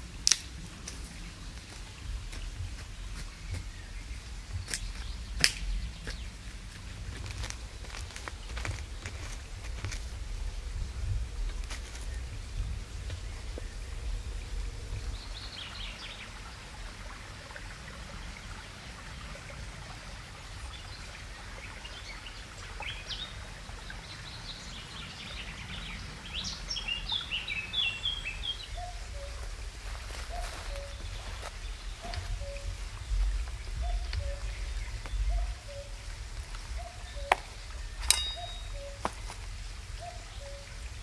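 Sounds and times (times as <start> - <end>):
low background rumble: 0.0 - 20.7
songbirds chirping and singing: 20.7 - 41.0.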